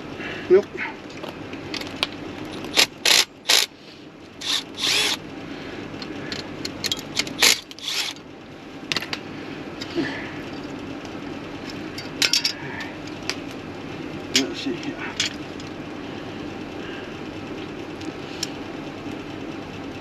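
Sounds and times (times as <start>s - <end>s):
hand ratchet clicking: 2.6s - 3.7s, 4.4s - 5.2s, 6.3s - 8.2s.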